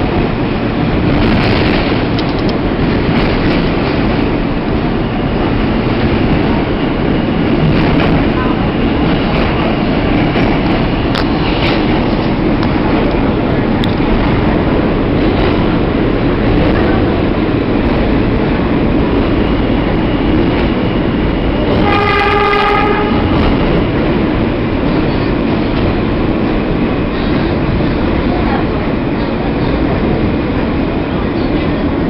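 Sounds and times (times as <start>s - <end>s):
train wheels rumbling on rails: 0.0s - 32.0s
train horn blast: 21.7s - 23.6s.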